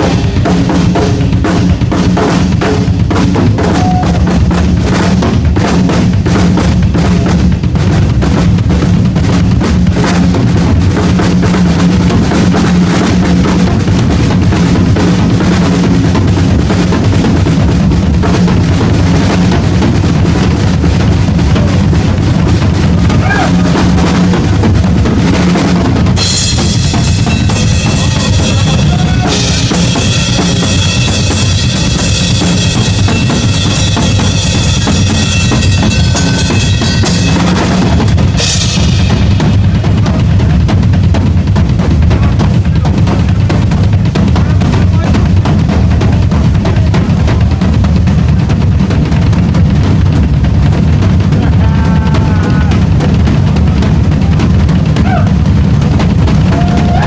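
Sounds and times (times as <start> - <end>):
cymbals crashing: 0.0 - 8.6, 10.1 - 41.0
bass drum pounding: 0.0 - 57.0
drum solo: 0.0 - 57.0.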